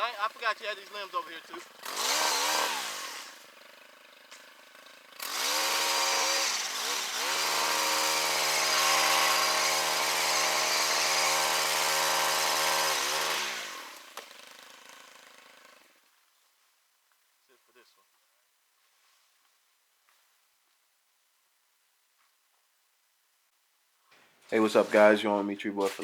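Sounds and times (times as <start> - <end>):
chainsaw revving: 0.0 - 16.0, 24.4 - 26.0.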